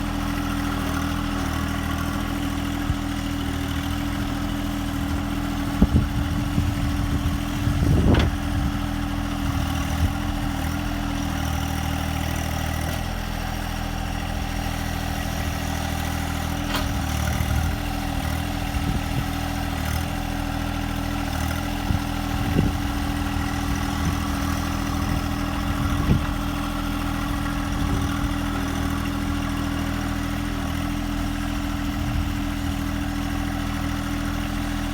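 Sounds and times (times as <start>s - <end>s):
machine engine running steadily: 0.0s - 34.9s
short knocks and clunks: 7.8s - 8.6s, 16.5s - 17.7s.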